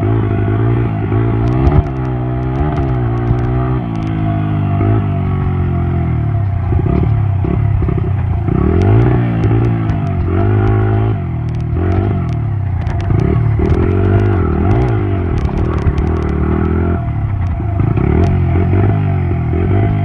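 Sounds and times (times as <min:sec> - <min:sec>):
dirt bike engine revving: 0:00.0 - 0:20.0
clattering clicks: 0:01.4 - 0:04.3, 0:08.7 - 0:18.4.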